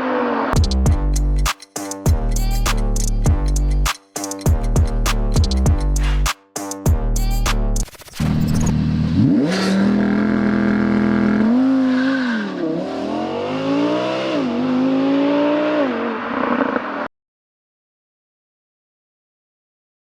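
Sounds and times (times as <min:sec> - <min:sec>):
car engine accelerating: 0:08.2 - 0:17.1.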